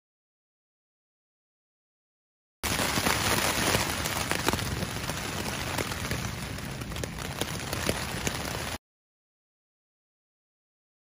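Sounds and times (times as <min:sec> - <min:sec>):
rain on a tent: 0:02.6 - 0:08.8
sharp raindrop ticks: 0:02.7 - 0:08.8.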